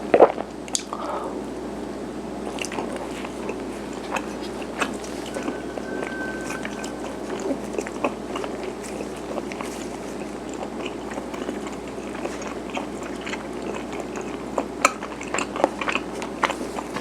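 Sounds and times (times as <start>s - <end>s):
chewing rice cakes: 0.1s - 1.0s, 2.4s - 5.3s, 8.0s - 17.0s.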